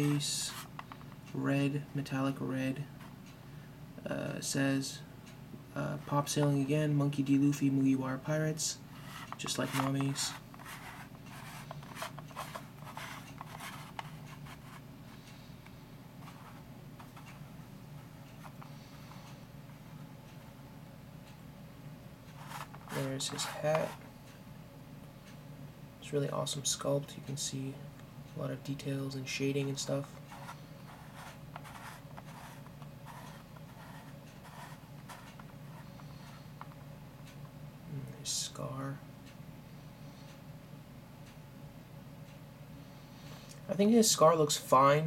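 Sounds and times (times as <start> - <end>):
scratchy handling sounds: 0.0 - 1.1, 8.9 - 15.2, 16.2 - 17.4, 22.3 - 24.1, 29.6 - 36.8
faint room hum: 0.0 - 45.0.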